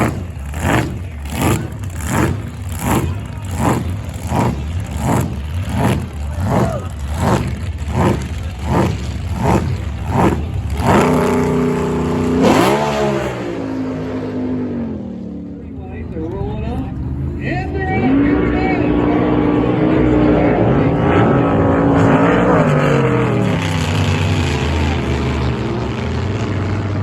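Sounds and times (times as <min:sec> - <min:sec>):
jet boat engines pulsing: 0:00.0 - 0:13.0.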